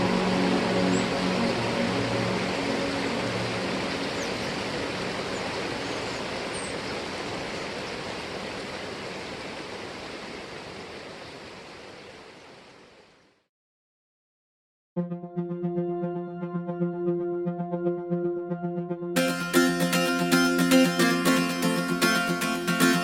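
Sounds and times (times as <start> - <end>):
flowing water rushing: 0.0 - 13.1.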